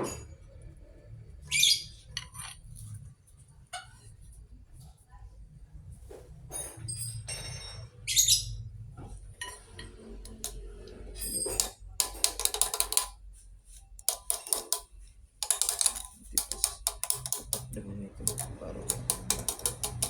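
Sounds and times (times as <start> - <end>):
metal tools clinking and rattling: 9.4 - 13.1, 14.0 - 20.0.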